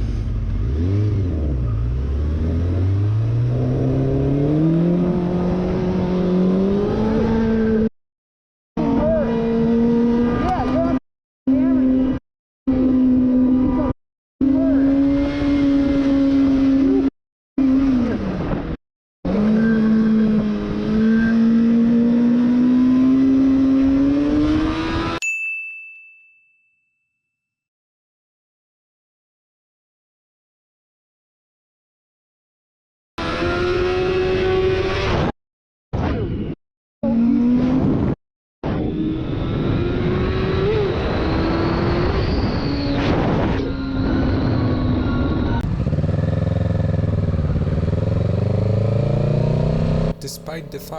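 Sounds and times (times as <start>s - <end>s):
road and wind noise: 0.0s - 7.9s, 8.8s - 25.2s, 33.2s - 35.3s, 37.1s - 50.9s
bell-like ding: 25.2s - 27.4s
motorcycle engine running: 45.6s - 50.2s.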